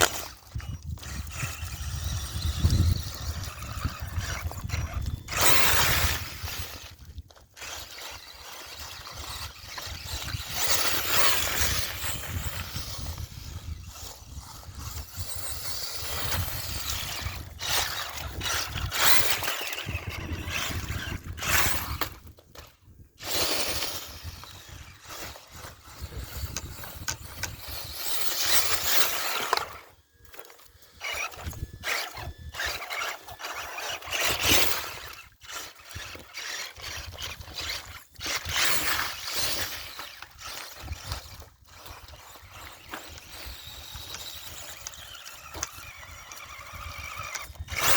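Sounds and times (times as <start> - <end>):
electric motor revving: 0.0 - 22.3, 23.2 - 47.9
wind rumbling on microphone: 0.0 - 29.8, 31.0 - 32.8.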